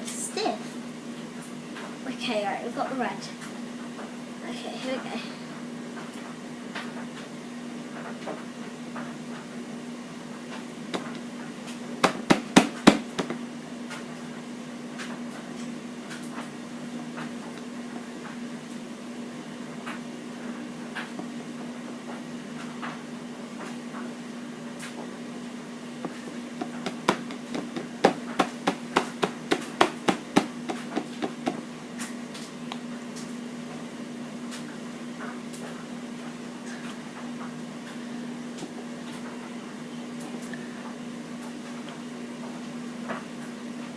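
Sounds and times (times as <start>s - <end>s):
steady low hum: 0.0s - 41.9s
hard sharp taps: 12.0s - 13.4s, 26.0s - 31.6s.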